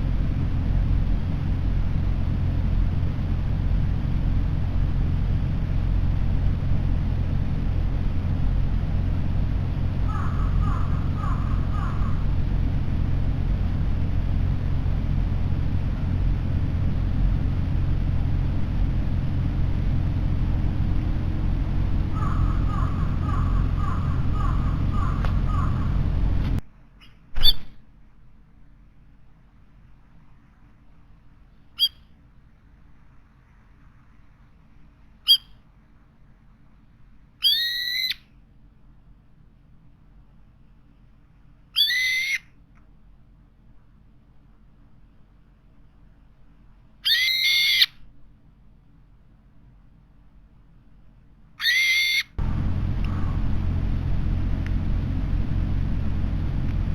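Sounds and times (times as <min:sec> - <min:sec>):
low outdoor rumble: 0:00.0 - 0:56.9
bird calling short falling notes: 0:10.0 - 0:12.4, 0:22.1 - 0:26.2, 0:37.4 - 0:38.2, 0:41.8 - 0:42.5, 0:47.0 - 0:48.0, 0:51.6 - 0:52.4.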